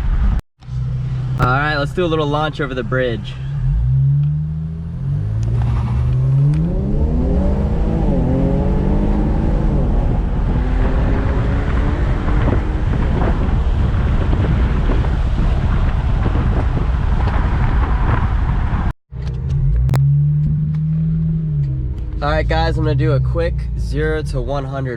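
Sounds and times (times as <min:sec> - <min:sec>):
car engine accelerating hard: 0:00.6 - 0:24.9.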